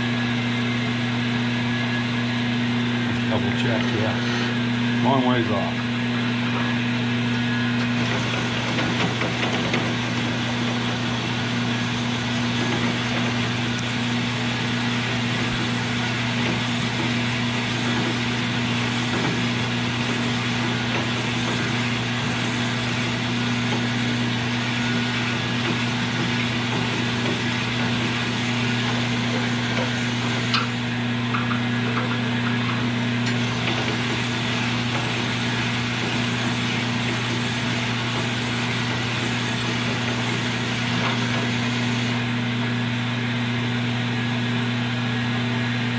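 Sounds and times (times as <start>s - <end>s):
electric motor humming and grinding: 5.8s - 42.6s.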